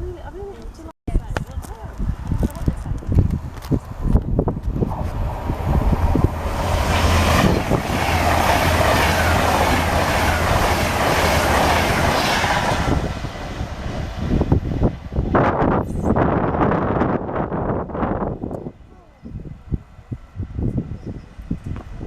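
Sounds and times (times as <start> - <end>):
low train rumble: 1.8 - 22.0
train wheels rushing on rails: 2.3 - 18.3.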